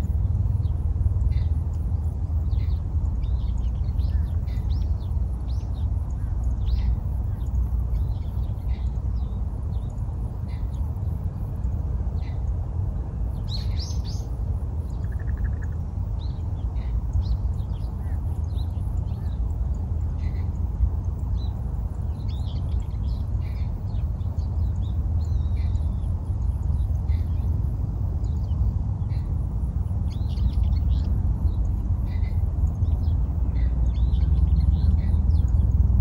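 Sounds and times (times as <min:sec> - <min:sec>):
steady low rumble: 0:00.0 - 0:36.0
bird chirps: 0:13.3 - 0:27.6, 0:30.0 - 0:35.8.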